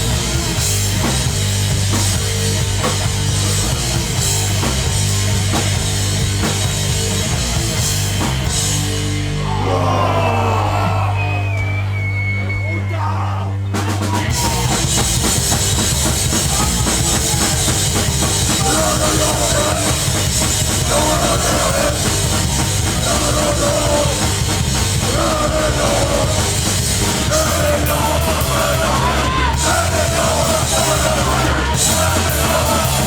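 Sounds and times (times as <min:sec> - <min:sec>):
drum kit: 0:00.0 - 0:12.0, 0:13.7 - 0:33.0
distorted guitars: 0:00.0 - 0:12.6, 0:13.5 - 0:33.0
shouted vocals: 0:09.3 - 0:15.0, 0:18.5 - 0:33.0.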